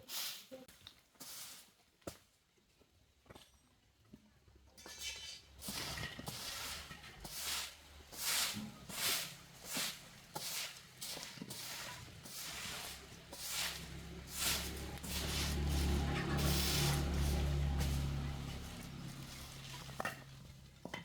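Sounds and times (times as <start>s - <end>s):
rhythmic swishing scrapes: 7.6s - 20.8s
low steady hum: 12.0s - 21.0s.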